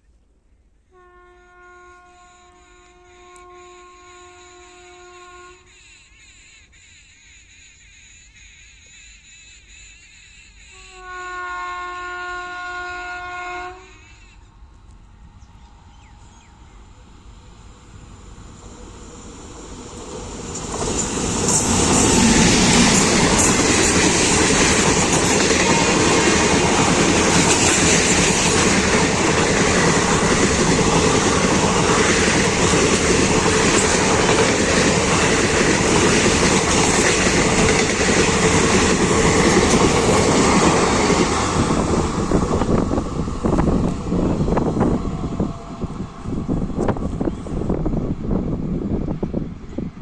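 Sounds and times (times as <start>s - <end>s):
train wheels rattling on rails: 17.6s - 50.0s.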